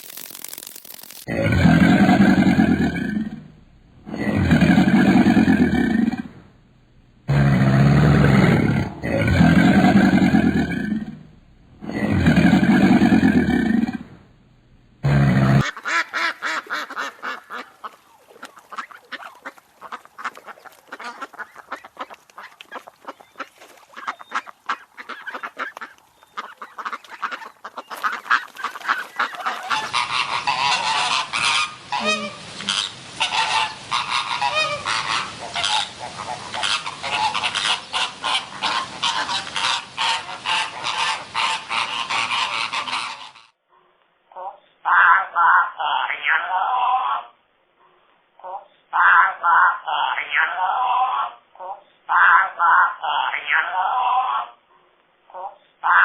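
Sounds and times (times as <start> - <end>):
geese honking: 18.7 - 43.5.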